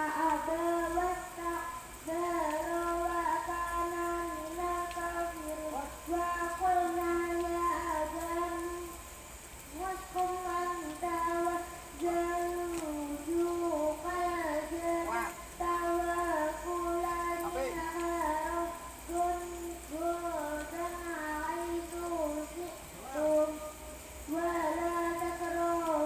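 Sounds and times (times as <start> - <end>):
high-pitched voices singing: 9.8 - 26.0.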